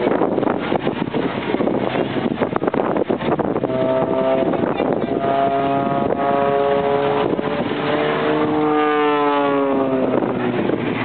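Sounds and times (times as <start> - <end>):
wind rush: 0.0 - 11.0
aircraft engine droning past: 3.7 - 11.0.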